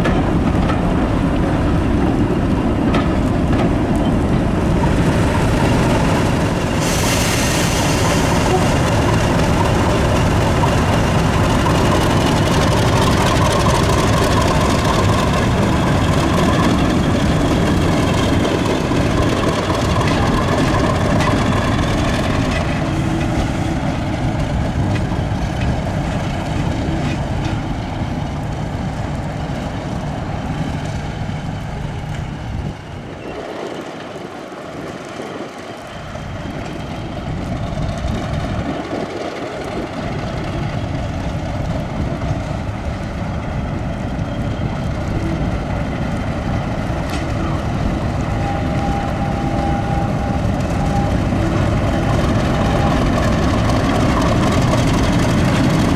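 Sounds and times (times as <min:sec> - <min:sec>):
diesel locomotive engine running: 0:00.0 - 0:55.9.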